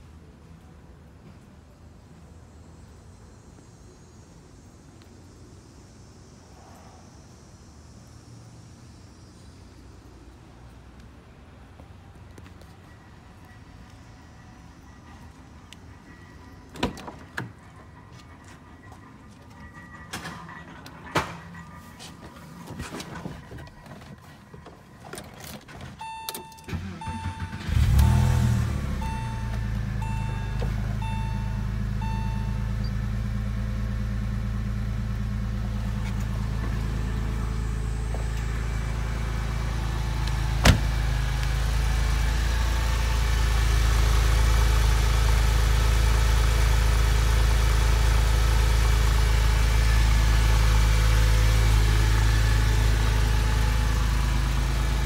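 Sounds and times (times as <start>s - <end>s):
car engine starting and idling: 12.4s - 55.0s
dashboard warning chime beeping: 25.9s - 33.3s.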